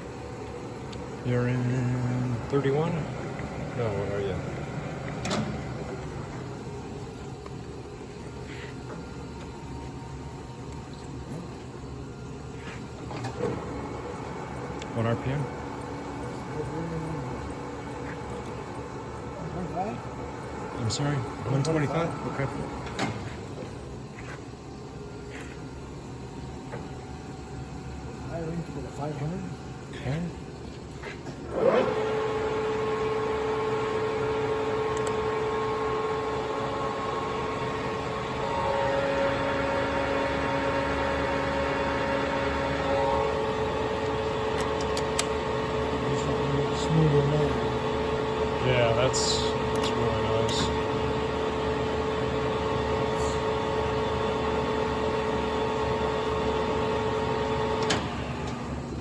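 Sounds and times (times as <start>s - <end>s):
lathe spindle humming: 0.0s - 59.0s
steady tone from lathe headstock: 32.4s - 44.6s.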